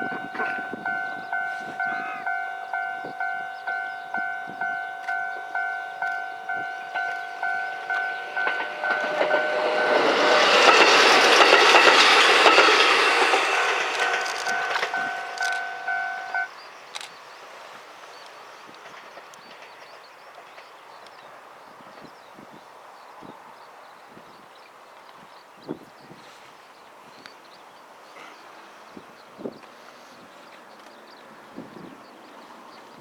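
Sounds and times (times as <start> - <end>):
level crossing bell dinging: 0.0 - 10.2, 13.2 - 16.5
electric train passing: 0.0 - 22.1.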